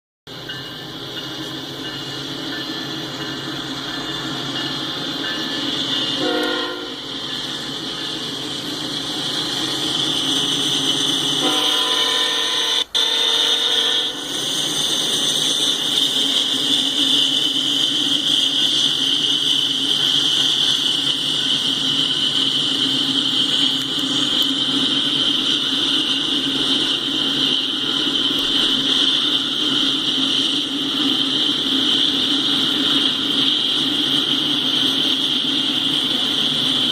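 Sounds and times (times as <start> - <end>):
train rail noise: 0.3 - 36.9
locomotive horn blasts: 6.2 - 7.1, 11.4 - 14.2
high hiss: 6.8 - 36.9.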